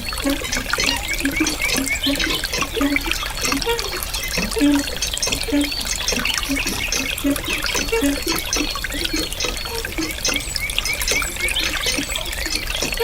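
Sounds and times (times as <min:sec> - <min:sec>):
water drops plopping: 0:00.0 - 0:13.0
water trickling and splashing: 0:00.0 - 0:13.0.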